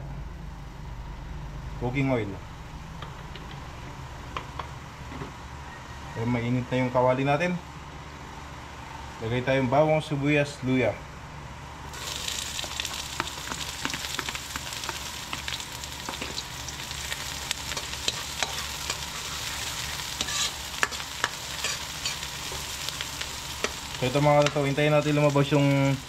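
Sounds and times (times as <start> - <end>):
aromatics sizzling in hot oil: 11.9 - 26.0.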